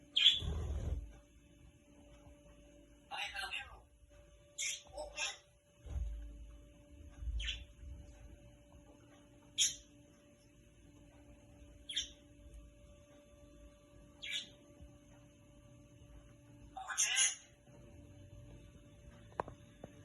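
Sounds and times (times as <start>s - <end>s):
bird chirping: 0.0s - 1.0s, 4.5s - 5.4s, 7.2s - 7.9s, 9.5s - 10.0s, 11.6s - 12.4s, 14.1s - 14.7s.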